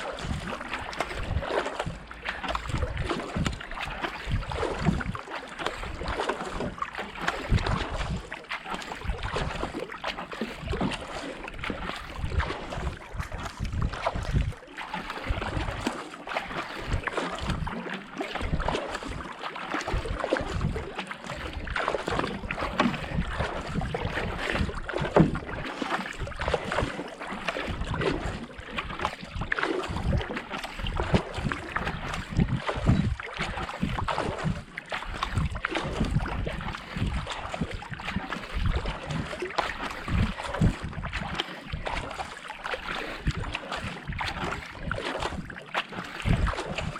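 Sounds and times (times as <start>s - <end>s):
paddle strokes splashing water: 0.0s - 46.9s
wind buffeting microphone: 0.2s - 5.2s, 5.9s - 8.2s, 11.6s - 14.6s, 20.0s - 20.8s, 21.4s - 25.6s, 30.9s - 38.0s, 46.3s - 46.9s.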